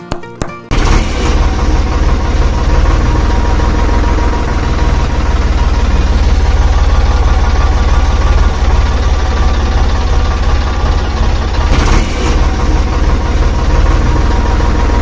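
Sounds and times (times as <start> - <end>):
small machine low throbbing: 0.7 - 15.0.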